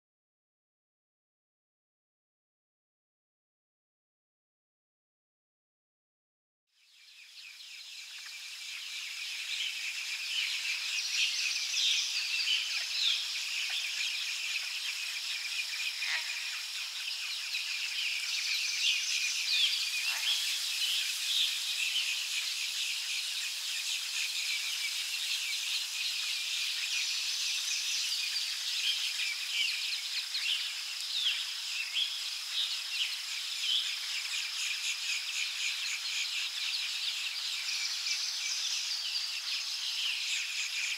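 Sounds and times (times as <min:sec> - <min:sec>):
high insect drone: 0:06.8 - 0:40.9
birds chirping and calling: 0:19.5 - 0:22.4.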